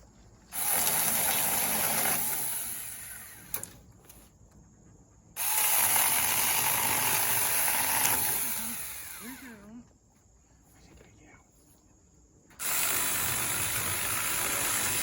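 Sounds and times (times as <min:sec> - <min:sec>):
mini chainsaw whining: 0:00.5 - 0:03.6, 0:05.4 - 0:09.7, 0:12.6 - 0:15.0.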